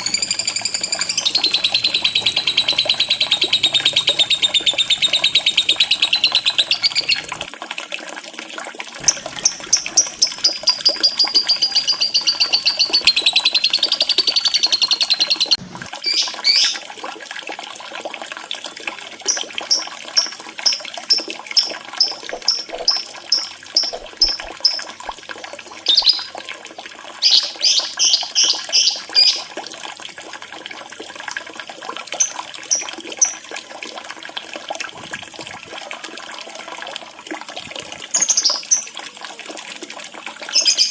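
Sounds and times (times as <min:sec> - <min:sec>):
bird trilling and chirping: 0:00.0 - 0:07.5, 0:09.0 - 0:16.8, 0:21.6 - 0:24.9, 0:25.9 - 0:26.3
trickle of running water: 0:00.0 - 0:40.9.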